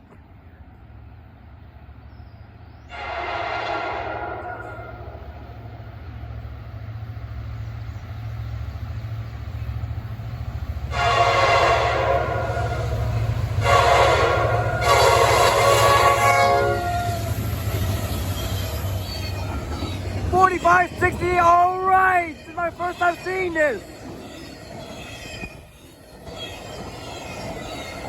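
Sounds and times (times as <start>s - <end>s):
diesel locomotive rumble: 0.0s - 28.0s
locomotive air horn: 2.9s - 5.5s, 10.9s - 17.4s.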